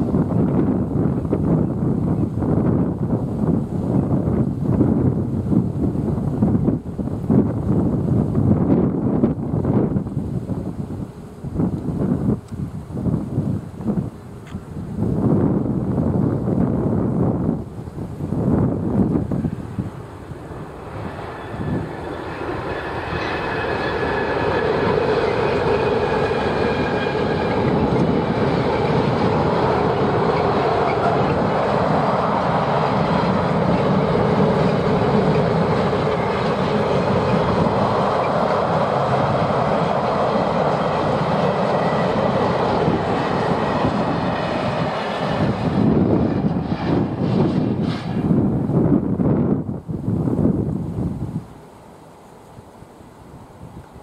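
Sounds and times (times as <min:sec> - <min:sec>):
freight train rumbling over bridge: 0:00.0 - 0:54.0
faint high whining tones: 0:17.3 - 0:46.1.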